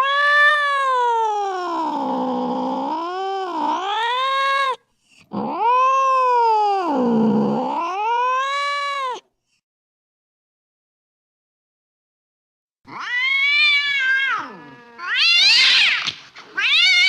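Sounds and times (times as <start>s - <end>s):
cat yowling: 0.0s - 9.2s, 12.9s - 17.0s.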